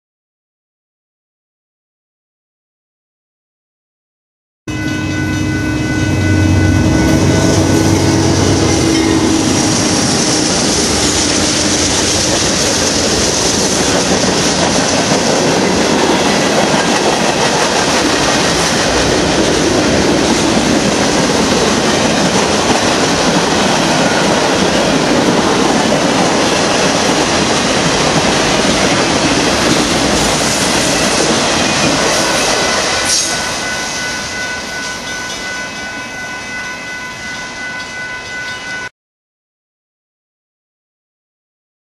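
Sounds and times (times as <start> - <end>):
low drone: 4.7 - 15.0, 17.7 - 23.2
freight train wheels rumbling: 5.0 - 38.8
clickety-clack over rail joints: 11.9 - 33.4.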